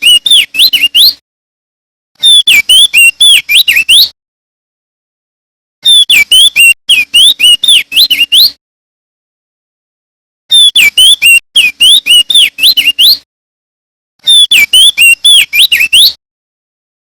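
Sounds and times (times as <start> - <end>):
bird whistled song phrases: 0.0 - 1.2, 2.2 - 4.2, 5.8 - 8.6, 10.5 - 13.2, 14.2 - 16.2.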